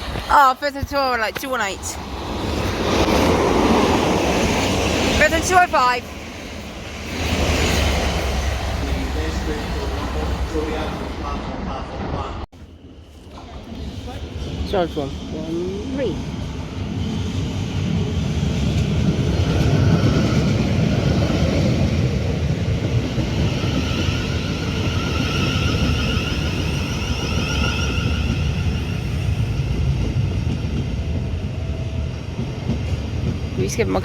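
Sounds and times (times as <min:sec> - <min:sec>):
train rumbling past: 0:00.0 - 0:34.0.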